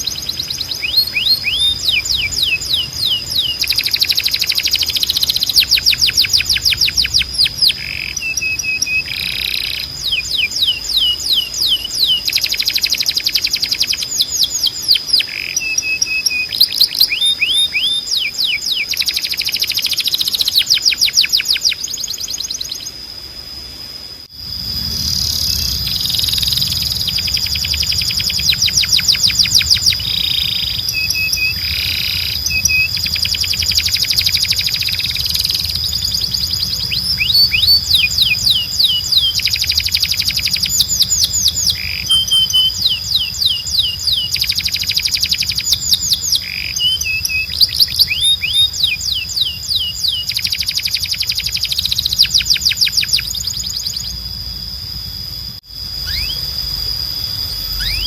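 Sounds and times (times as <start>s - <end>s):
canary singing trills: 0.0s - 58.0s
steady high tone: 22.6s - 58.0s
low hum: 22.8s - 58.0s.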